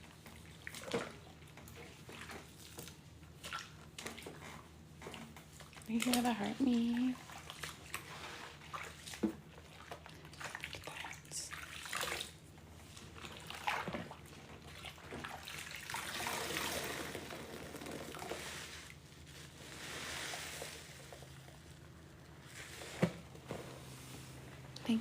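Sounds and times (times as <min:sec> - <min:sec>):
water splashing into sink: 0:13.2 - 0:18.6
sponge squeezed: 0:15.2 - 0:23.3.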